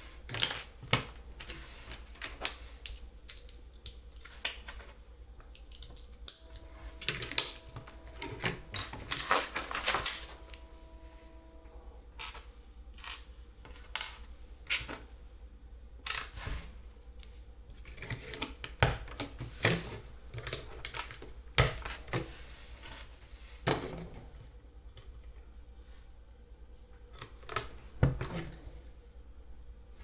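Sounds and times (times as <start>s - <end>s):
faint low hum: 0.0s - 30.0s
plastic bricks clicking: 5.5s - 7.6s.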